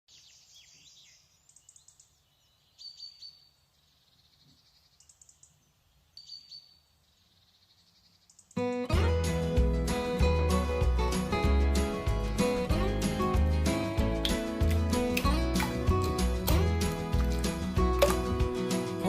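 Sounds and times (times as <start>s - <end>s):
small birds chirping: 0.1s - 8.8s.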